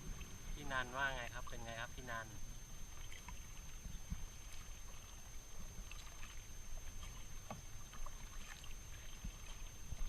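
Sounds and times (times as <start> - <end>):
paddle splashes: 2.8 - 10.0.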